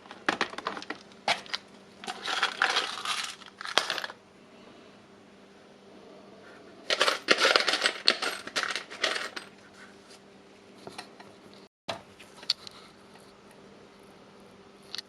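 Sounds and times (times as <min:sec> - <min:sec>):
screws clattering and rattling: 0:00.1 - 0:04.2, 0:06.9 - 0:09.6.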